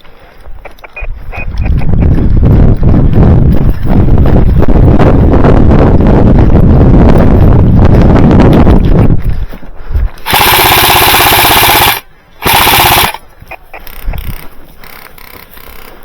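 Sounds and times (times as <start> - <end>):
wind buffeting microphone: 0.0 - 16.0
airsoft machine gun bursts: 10.2 - 13.2.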